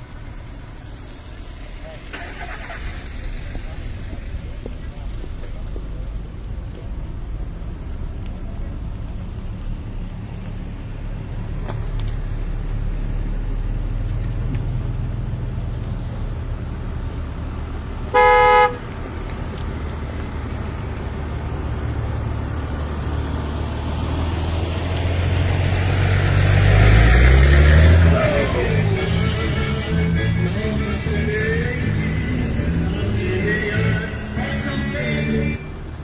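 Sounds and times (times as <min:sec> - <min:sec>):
engine low rumble: 0:00.0 - 0:36.0
car horn honk: 0:18.1 - 0:19.0.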